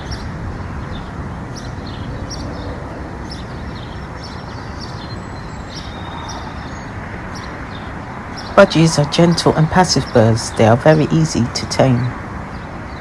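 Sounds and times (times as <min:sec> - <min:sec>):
high bird chirps: 0:00.0 - 0:08.7.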